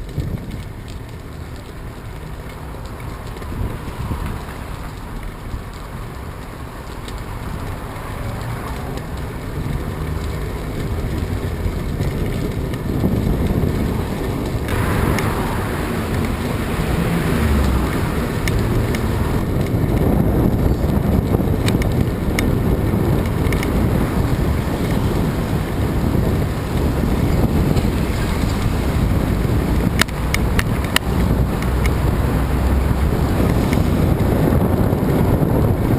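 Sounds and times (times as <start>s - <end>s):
strong wind buffeting microphone: 0.0s - 35.9s.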